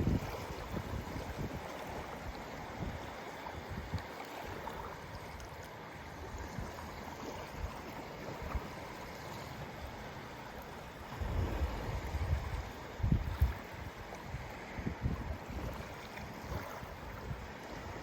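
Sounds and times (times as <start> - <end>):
wind gusts on microphone: 0.0 - 5.4, 11.0 - 18.0
lake waves washing: 0.0 - 18.0.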